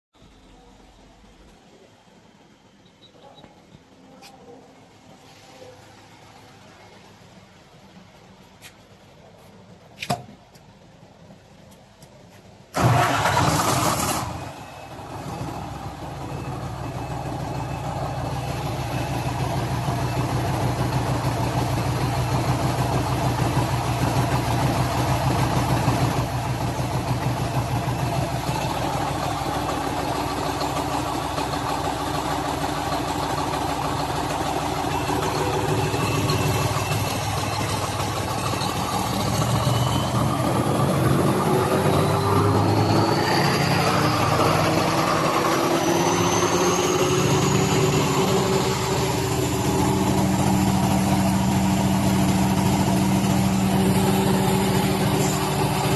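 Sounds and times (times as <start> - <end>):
diesel generator engine starting: 12.6 - 55.9.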